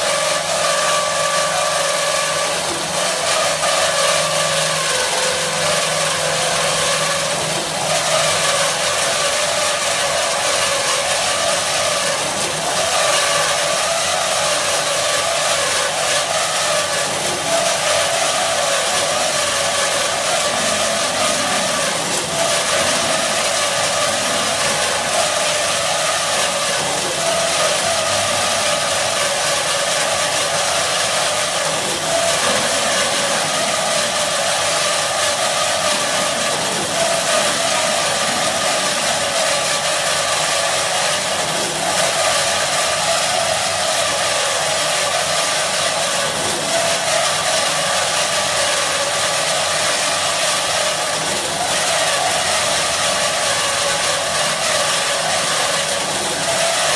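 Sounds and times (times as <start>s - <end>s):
band saw running: 0.0s - 56.9s.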